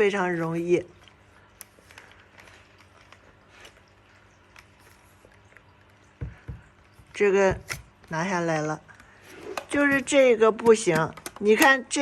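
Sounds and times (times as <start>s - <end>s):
plastic clicks and taps: 9.0s - 12.0s.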